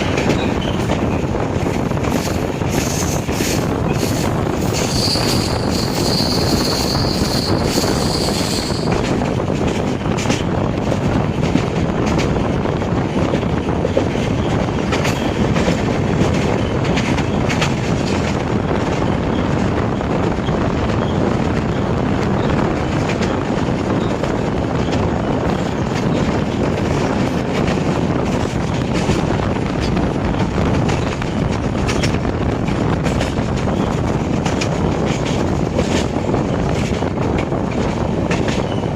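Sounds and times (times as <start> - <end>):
rail-joint clicks: 0.0 - 12.5, 13.2 - 21.5, 22.4 - 38.9
train wheels rumbling on track: 0.0 - 38.9
thin high squeal: 4.8 - 8.9.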